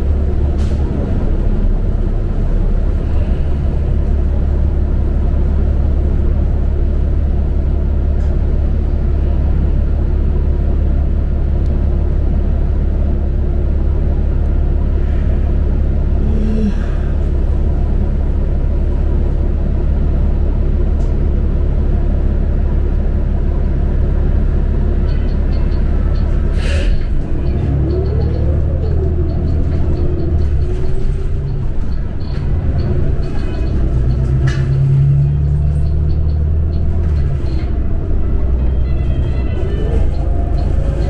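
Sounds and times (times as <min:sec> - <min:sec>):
bus engine and road rumble: 0:00.0 - 0:41.0.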